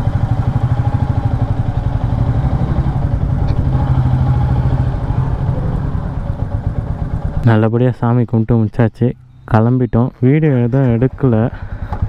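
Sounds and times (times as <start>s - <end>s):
motorcycle engine thumping at low revs: 0.0s - 7.4s, 10.8s - 12.0s.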